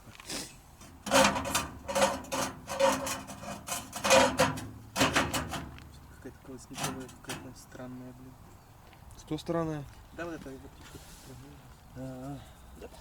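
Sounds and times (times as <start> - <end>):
metal stove parts scraping: 0.8 - 7.6.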